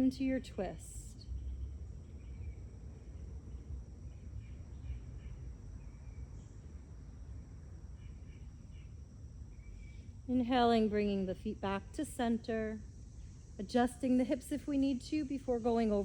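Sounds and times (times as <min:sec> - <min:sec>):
insect drone: 0:00.0 - 0:16.0.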